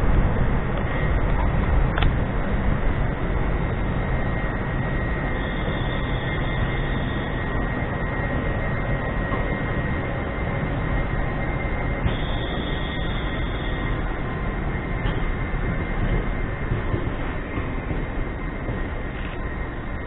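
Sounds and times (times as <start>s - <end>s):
electric train rumble and hum: 0.0s - 20.0s.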